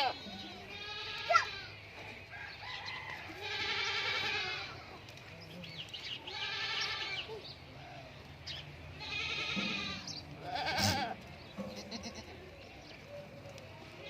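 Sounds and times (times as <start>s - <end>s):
goats bleating: 0.0s - 1.8s, 3.3s - 5.0s, 6.2s - 7.4s, 8.9s - 12.5s.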